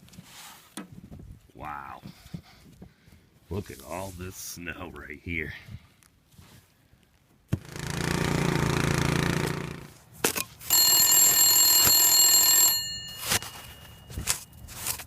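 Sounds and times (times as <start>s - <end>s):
ringing bell tone: 10.7s - 15.0s.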